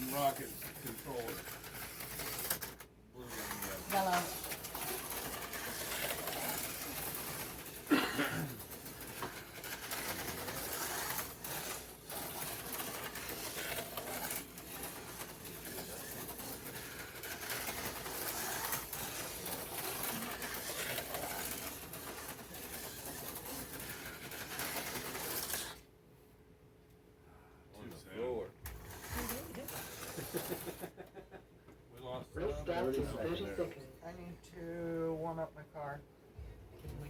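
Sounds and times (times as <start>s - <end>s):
slot car motors whirring: 0.0s - 25.9s, 28.6s - 30.9s.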